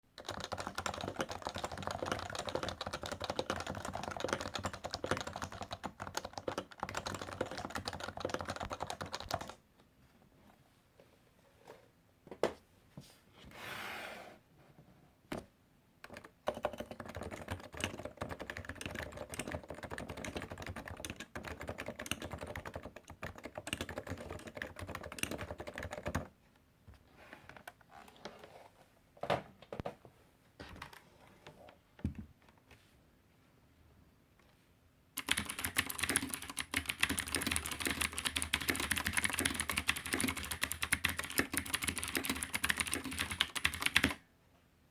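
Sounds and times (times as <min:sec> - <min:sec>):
fast keyboard typing: 0:00.1 - 0:09.6, 0:16.1 - 0:26.3, 0:35.2 - 0:44.2.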